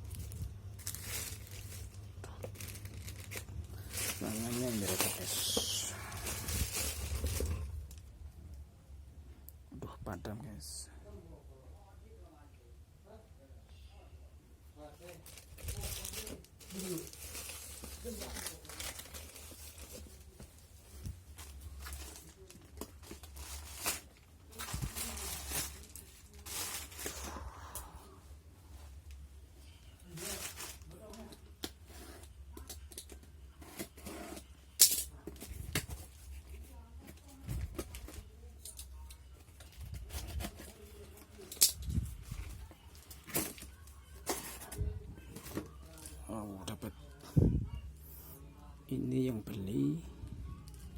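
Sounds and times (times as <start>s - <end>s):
plastic packaging crinkling: 0.0s - 8.1s, 15.0s - 27.4s, 30.0s - 31.8s, 35.0s - 46.2s.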